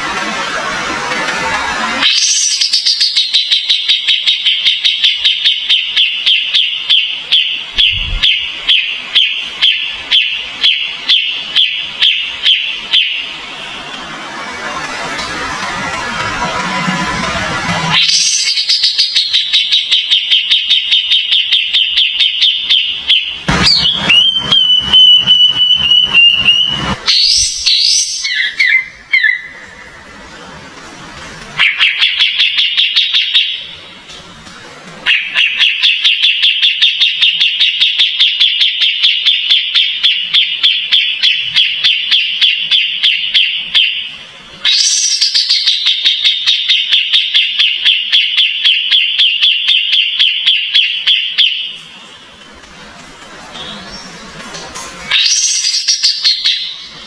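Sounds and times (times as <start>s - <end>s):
steady whistled bird passage: 2.0s - 14.8s, 17.5s - 30.2s, 35.0s - 52.3s, 55.1s - 57.0s
bird repeated chirping song: 2.1s - 14.0s, 17.9s - 29.8s, 31.6s - 33.8s, 35.0s - 52.2s, 55.1s - 57.0s.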